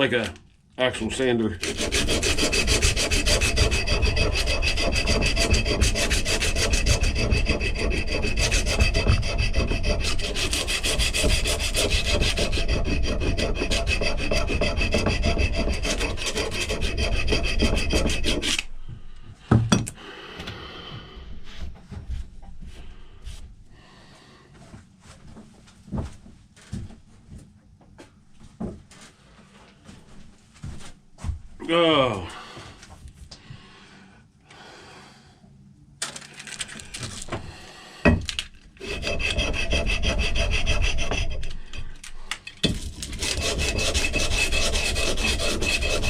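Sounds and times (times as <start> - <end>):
sandpaper rubbing on metal: 1.6 - 18.6, 38.8 - 41.5, 43.0 - 46.0.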